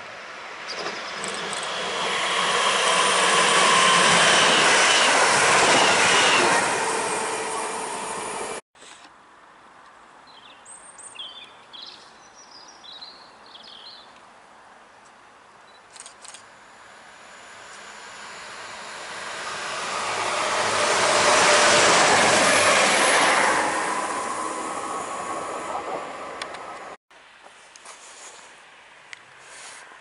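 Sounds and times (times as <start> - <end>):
train passing at speed: 0.0 - 8.6, 16.5 - 27.0.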